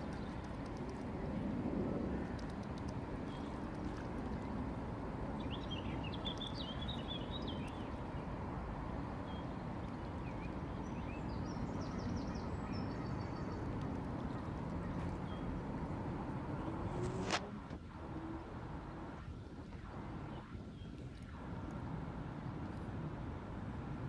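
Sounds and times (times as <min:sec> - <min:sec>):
low background rumble: 0:00.0 - 0:24.0
small birds chirping: 0:05.4 - 0:08.3.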